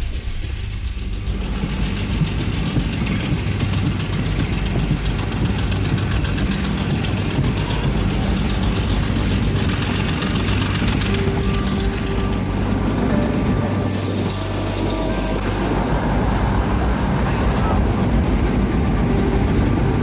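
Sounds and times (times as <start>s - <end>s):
passenger train rumbling: 0.0s - 20.0s.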